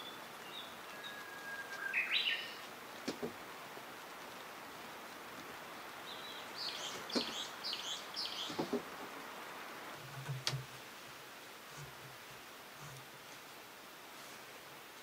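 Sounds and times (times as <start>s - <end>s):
songbird singing: 0.0s - 10.8s
wood knocking: 3.0s - 3.4s, 7.1s - 7.4s, 8.5s - 9.1s.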